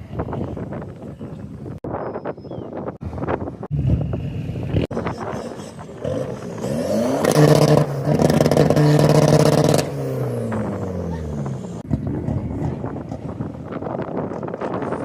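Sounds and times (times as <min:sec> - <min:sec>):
car engine revving: 0:03.6 - 0:14.0.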